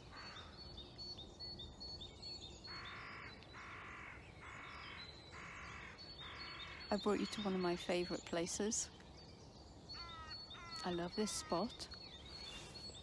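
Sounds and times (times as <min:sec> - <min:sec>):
small birds chirping: 0:00.0 - 0:13.0
crow cawing: 0:00.1 - 0:00.6, 0:02.7 - 0:06.9, 0:10.0 - 0:11.7.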